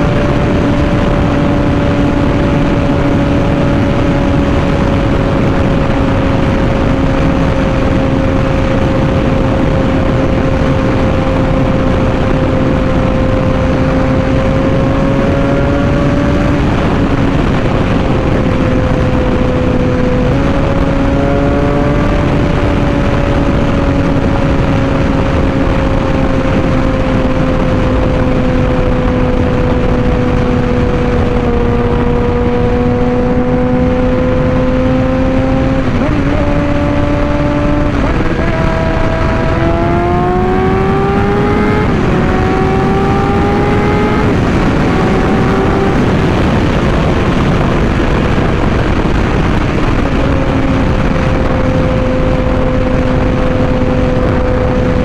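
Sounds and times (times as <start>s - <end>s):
motorcycle engine at high revs: 0.0s - 55.0s
wind rush: 0.0s - 55.0s.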